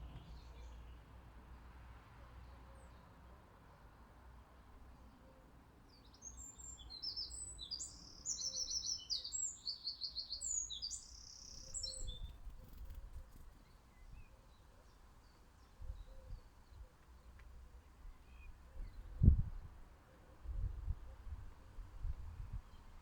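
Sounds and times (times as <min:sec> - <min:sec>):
faint bird chirps: 0:05.2 - 0:17.3
songbird trilling song: 0:05.9 - 0:17.4.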